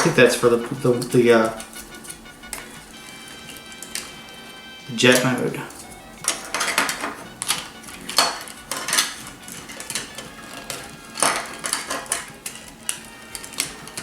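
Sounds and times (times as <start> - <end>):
plastic toy parts clicking: 5.2 - 14.0.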